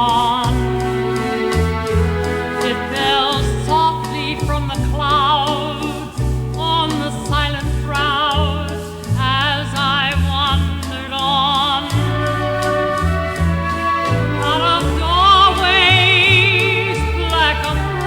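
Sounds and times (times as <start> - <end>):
orchestra playing: 0.0 - 6.3, 11.8 - 18.0
woman singing with vibrato: 0.0 - 18.0.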